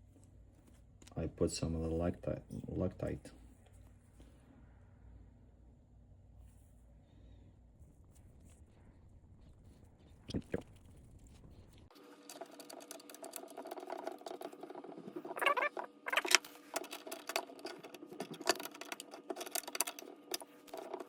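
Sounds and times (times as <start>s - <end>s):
faint steady hum: 0.0s - 21.0s
clicks and scrapes of metal parts: 12.2s - 21.0s.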